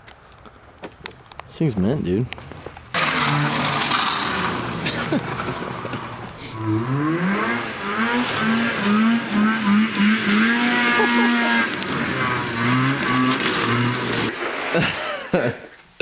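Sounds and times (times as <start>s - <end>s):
dirt bike engine revving: 2.9s - 14.4s.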